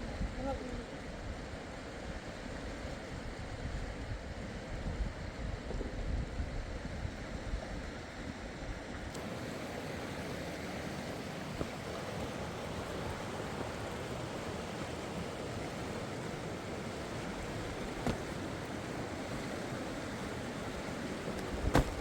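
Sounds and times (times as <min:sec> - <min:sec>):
fast-flowing river water: 0:09.2 - 0:22.0.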